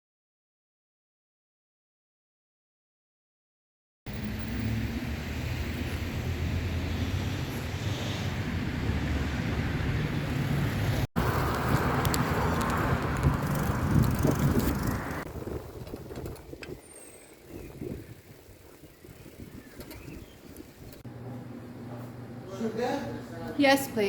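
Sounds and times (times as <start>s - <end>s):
road or wind noise: 4.1s - 21.1s
vehicle engine hum: 4.1s - 21.9s.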